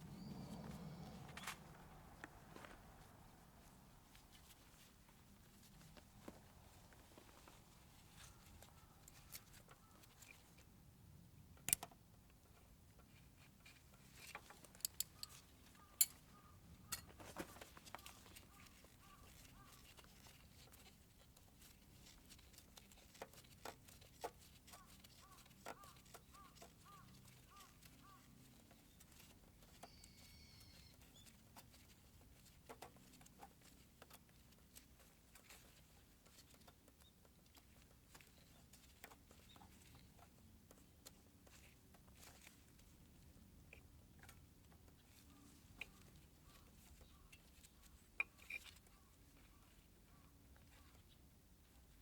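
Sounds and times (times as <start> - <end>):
faint short chirps: 29.8 - 31.2.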